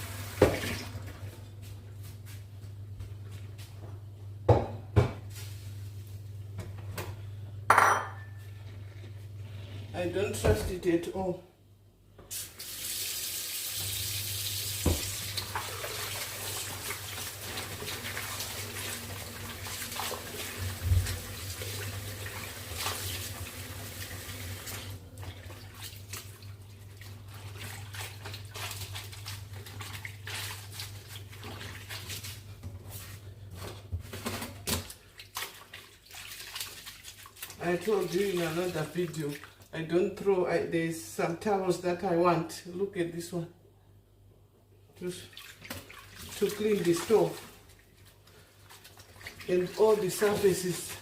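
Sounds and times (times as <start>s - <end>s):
tap running into a sink: 0.3s - 0.9s, 14.7s - 15.6s.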